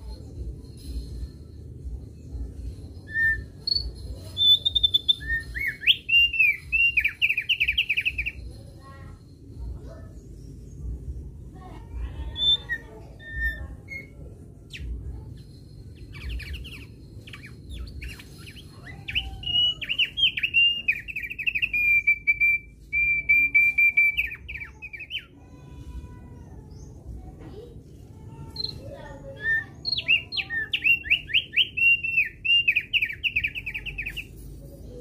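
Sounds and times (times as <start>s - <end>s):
bird chirping: 0.0s - 25.5s, 28.2s - 34.8s
bird song fast repeated notes: 3.0s - 8.4s, 15.9s - 25.3s, 29.6s - 34.2s
low steady rumble: 8.3s - 20.2s.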